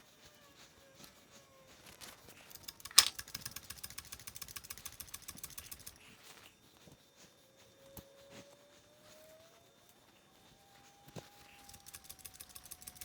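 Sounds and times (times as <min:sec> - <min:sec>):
ratchet clicking rapidly: 0:02.4 - 0:06.1, 0:11.5 - 0:13.0
sharp click: 0:02.6 - 0:03.8.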